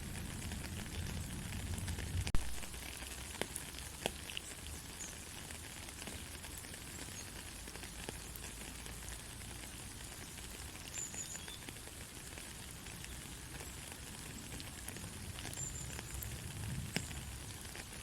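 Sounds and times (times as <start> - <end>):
soft steady rain: 0.0 - 18.0
water drips: 0.0 - 18.0.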